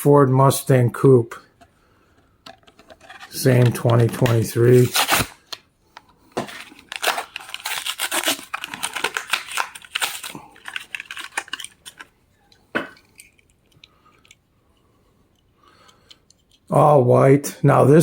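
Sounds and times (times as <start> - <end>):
card and plastic packaging tearing: 3.2 - 5.6, 6.4 - 12.1.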